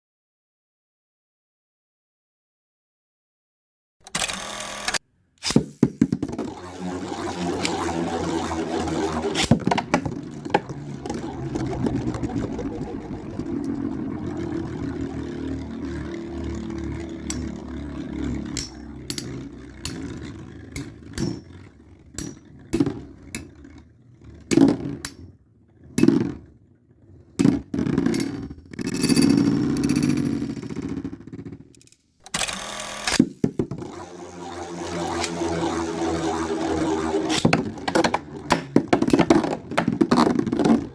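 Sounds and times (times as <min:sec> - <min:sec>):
spinning tops whirring: 0:04.1 - 0:40.9
spinning tops clattering together: 0:15.9 - 0:23.7, 0:27.4 - 0:32.0.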